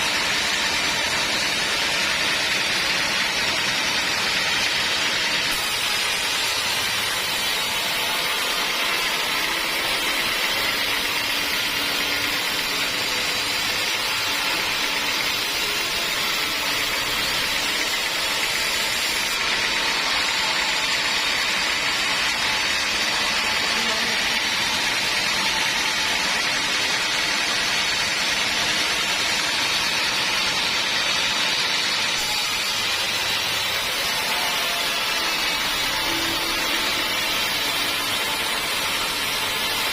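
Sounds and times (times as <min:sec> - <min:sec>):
band saw cutting log: 0:00.0 - 0:39.9.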